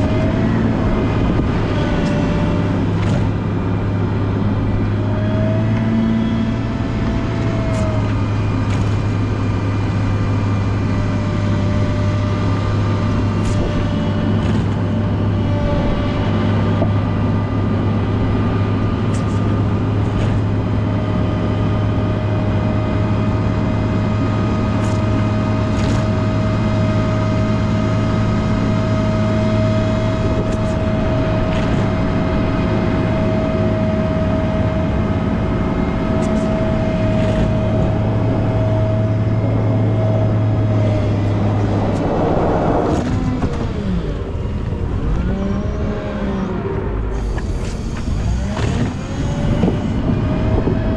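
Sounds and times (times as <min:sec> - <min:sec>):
diesel engine running under load: 0:00.0 - 0:50.9
steady whine: 0:33.2 - 0:45.2.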